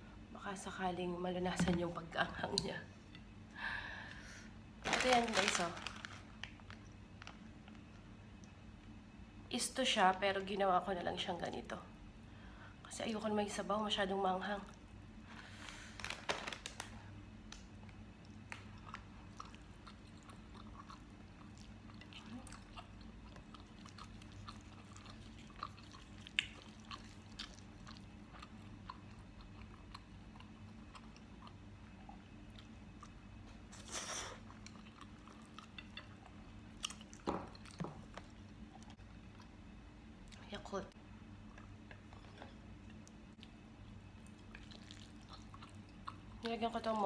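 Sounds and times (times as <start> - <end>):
close chewing with mouth clicks: 17.9 - 39.5, 44.2 - 46.5.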